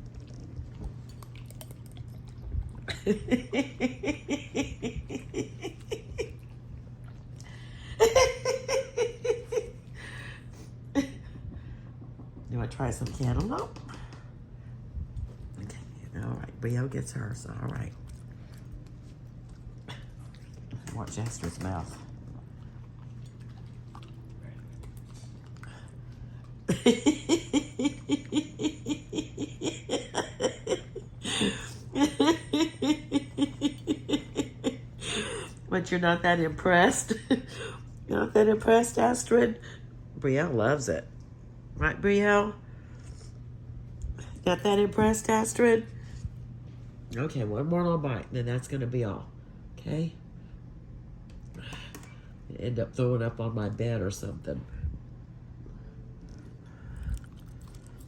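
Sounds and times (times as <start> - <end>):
woman laughing: 2.9 - 6.4, 7.8 - 10.3, 26.7 - 35.6, 36.8 - 37.8.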